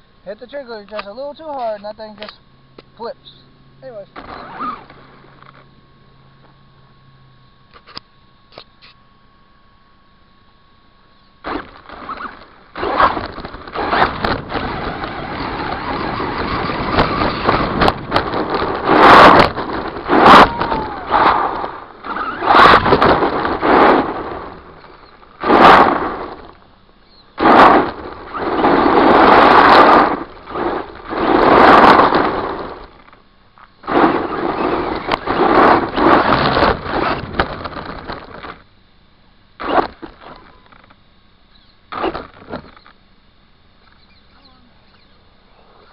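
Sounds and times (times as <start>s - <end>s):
rc truck motor surging: 3.9s - 5.6s, 11.4s - 33.2s, 33.8s - 38.6s, 39.6s - 43.0s.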